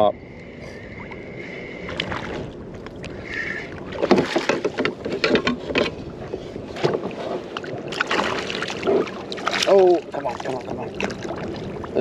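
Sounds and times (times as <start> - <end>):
fish thrashing and splashing: 6.8 - 12.0.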